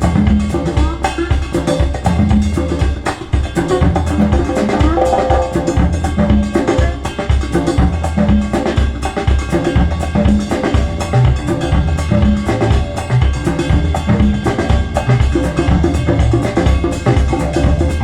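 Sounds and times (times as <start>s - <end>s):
music with drums and bass: 0.0s - 18.0s.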